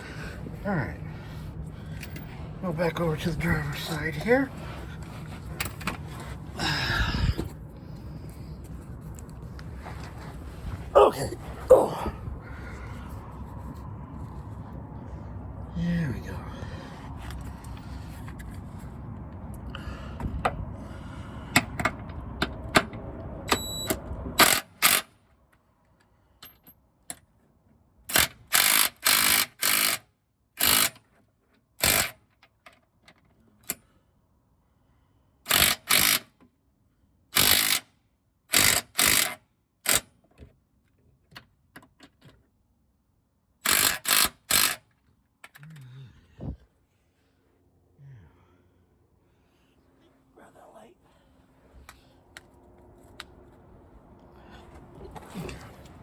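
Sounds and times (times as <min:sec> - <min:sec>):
steady rumbling background: 0:00.0 - 0:23.2
impact wrench bursts: 0:24.4 - 0:25.1, 0:28.1 - 0:30.0, 0:30.6 - 0:31.0, 0:31.8 - 0:32.2, 0:35.5 - 0:36.3, 0:37.4 - 0:37.9, 0:38.5 - 0:40.1, 0:43.6 - 0:44.9.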